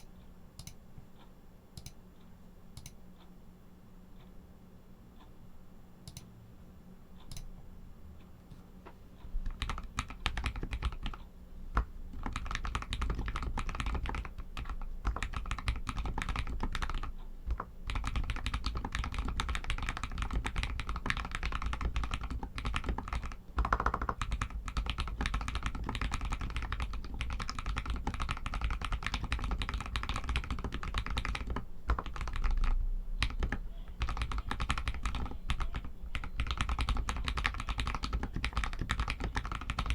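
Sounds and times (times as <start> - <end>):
typing on mechanical keyboard: 9.5 - 39.9.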